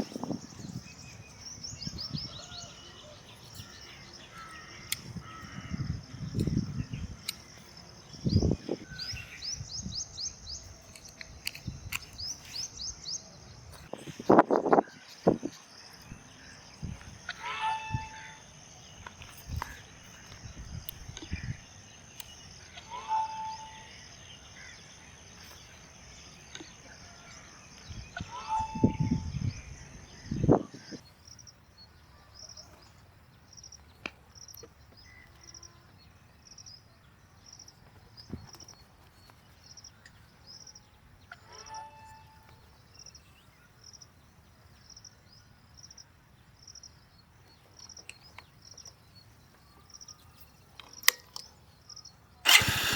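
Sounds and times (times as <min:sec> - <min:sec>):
high insect chirp: 0:00.0 - 0:31.8
bird call: 0:17.2 - 0:18.5, 0:22.2 - 0:24.8, 0:28.1 - 0:29.5.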